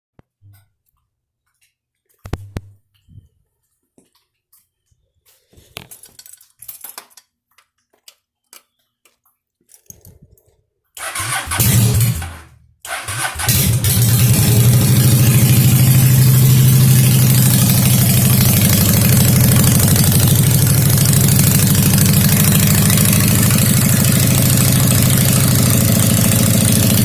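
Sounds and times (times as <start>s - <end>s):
faint clicks and rattles: 5.5s - 11.0s
motorcycle engine starting and idling: 11.0s - 27.0s.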